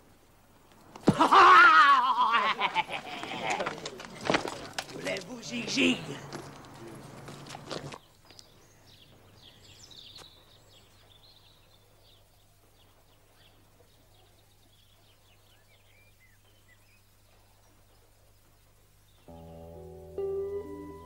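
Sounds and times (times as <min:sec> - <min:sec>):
birds chirping: 0:02.4 - 0:21.0
low steady hum: 0:19.3 - 0:21.0.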